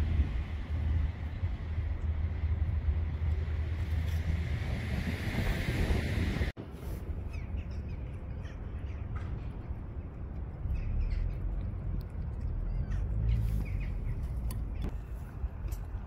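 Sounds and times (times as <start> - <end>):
steady low rumble: 0.0 - 16.0
birds calling: 7.3 - 15.0.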